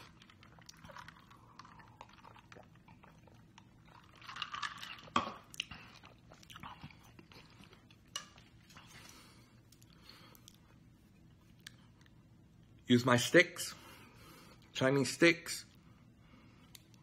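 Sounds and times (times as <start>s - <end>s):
man swallowing and chewing: 0.0s - 12.8s.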